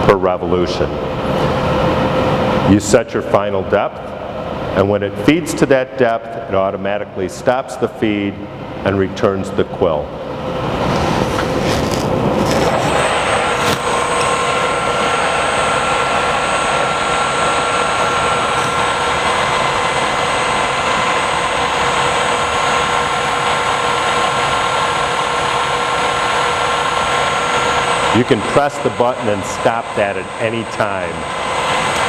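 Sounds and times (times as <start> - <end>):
drill press whining: 10.2 - 32.0.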